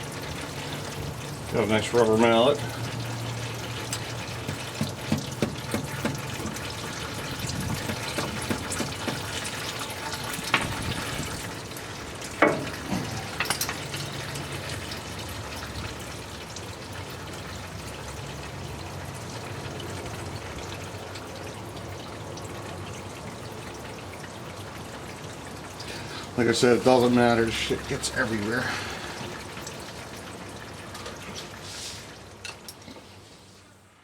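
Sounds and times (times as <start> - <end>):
fluid pouring and splashing: 0.0 - 33.2.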